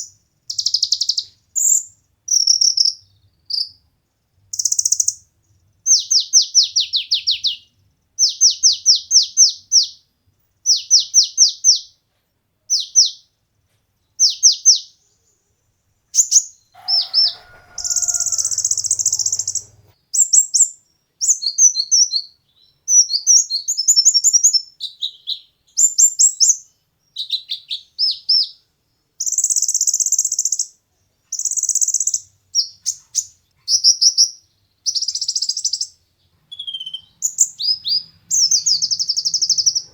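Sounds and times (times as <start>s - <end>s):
sunbird singing: 0.0s - 3.8s, 4.5s - 12.0s, 16.1s - 28.6s, 29.2s - 39.9s.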